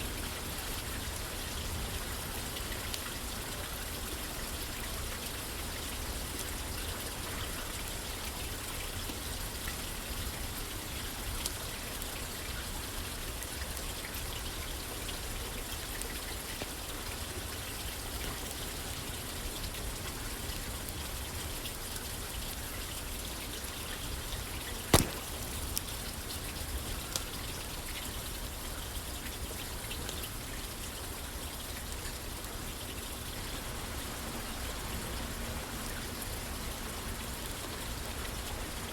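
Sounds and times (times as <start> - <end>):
rain pattering on a roof: 0.0 - 38.9
wood fire crackling and popping: 25.0 - 26.0.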